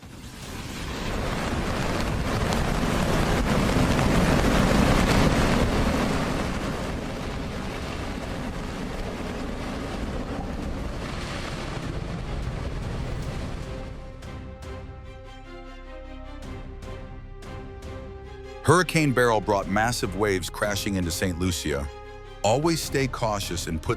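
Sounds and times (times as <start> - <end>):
wind noise on microphone: 0.0 - 14.2
floodwater rushing: 0.0 - 14.9, 18.2 - 23.9.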